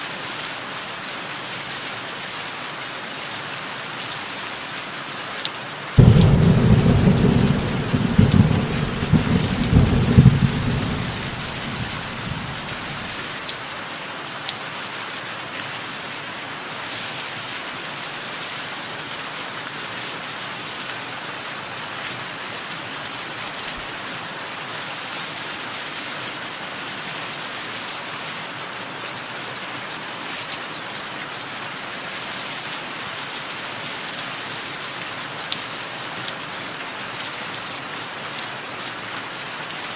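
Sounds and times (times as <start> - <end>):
steady rain: 0.0 - 39.9
thunder rumbling: 6.0 - 13.3.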